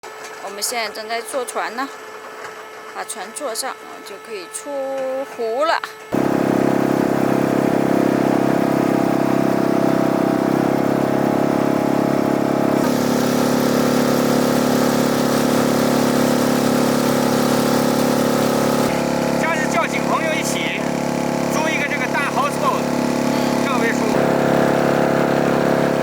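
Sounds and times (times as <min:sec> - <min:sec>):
outboard motor running: 0:05.4 - 0:26.0.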